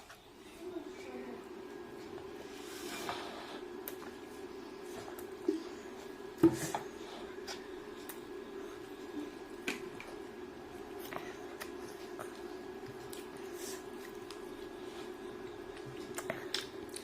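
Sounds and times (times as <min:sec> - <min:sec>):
steady low hum: 0:00.0 - 0:17.0
wet chewing and mouth sounds: 0:10.8 - 0:17.0.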